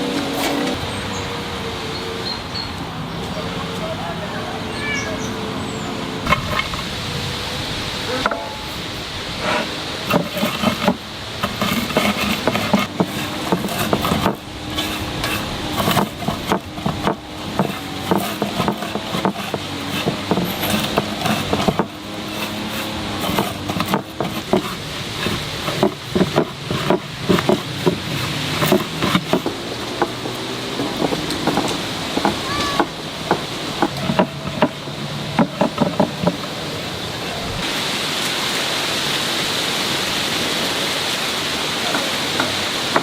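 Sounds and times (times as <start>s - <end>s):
utensils knocking on cookware: 8.2s - 36.5s, 41.9s - 43.0s.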